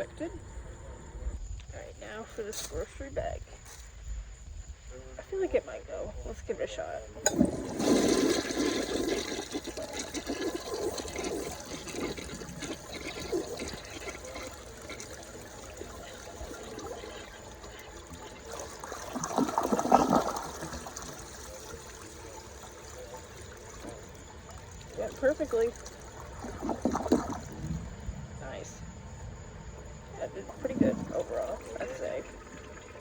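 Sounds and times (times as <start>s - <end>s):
water trickling: 5.2s - 33.0s
toilet flushing: 7.2s - 28.7s, 30.0s - 33.0s.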